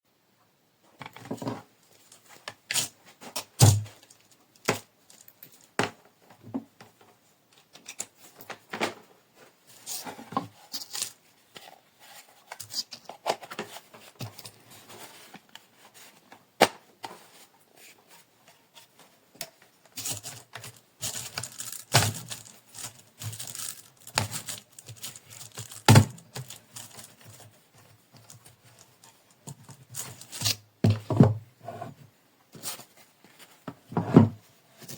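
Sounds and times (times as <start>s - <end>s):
crinkling and tearing: 20.0s - 27.5s.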